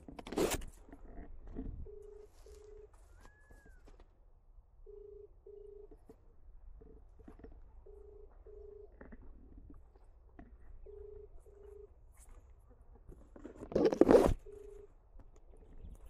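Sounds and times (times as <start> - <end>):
telephone ringback double beep: 4.9 - 5.9.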